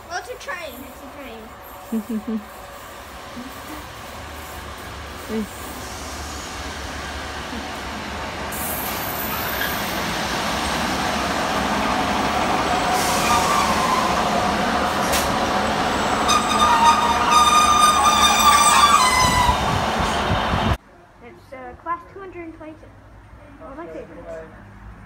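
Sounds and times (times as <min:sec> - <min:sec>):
train wheels on rails: 0:00.0 - 0:20.8
diesel railcar engines: 0:00.0 - 0:25.0
high metallic squeal: 0:13.0 - 0:14.2, 0:15.9 - 0:19.9.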